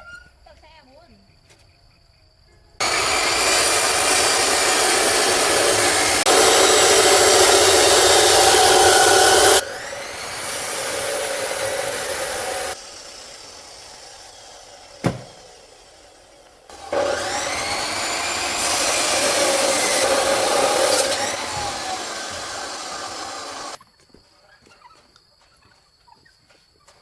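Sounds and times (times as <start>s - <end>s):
motor-driven tool running: 2.8s - 14.4s, 16.7s - 23.8s
sharp knock: 15.0s - 15.4s.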